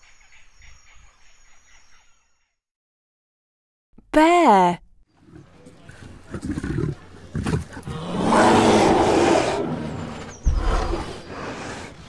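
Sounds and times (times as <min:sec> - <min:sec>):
bear growling: 0:05.2 - 0:12.0.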